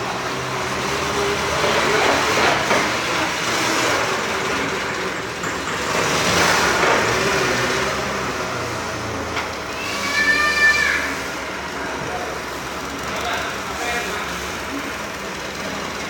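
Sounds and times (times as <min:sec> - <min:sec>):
vehicle engine running: 0:11.2 - 0:16.0.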